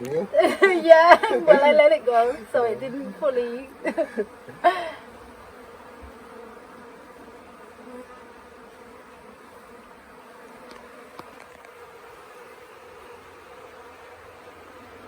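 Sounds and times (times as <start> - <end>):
bees buzzing: 0.0 - 15.0
faint ticks: 10.6 - 11.8.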